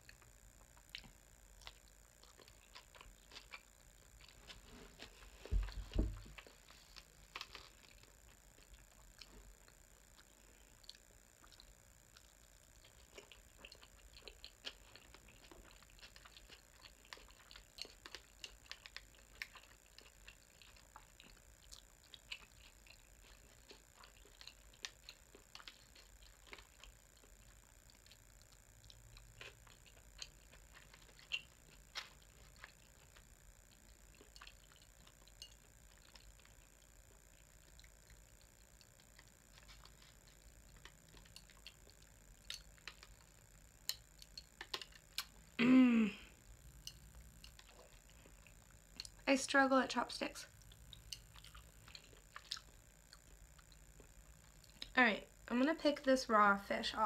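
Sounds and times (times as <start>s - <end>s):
wet chewing: 0.0s - 45.6s, 46.2s - 49.3s, 50.5s - 55.0s.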